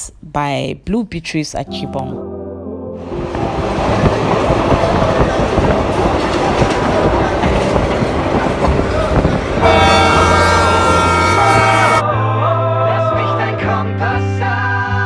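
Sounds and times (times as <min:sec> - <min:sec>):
train wheels clattering: 0:03.0 - 0:12.0
steady multi-tone horn: 0:03.0 - 0:12.1.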